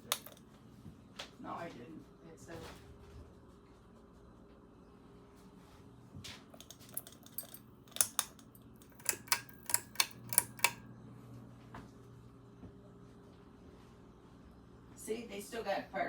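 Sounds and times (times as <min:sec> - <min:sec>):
sharp clicks: 0:00.0 - 0:00.4, 0:06.6 - 0:10.8.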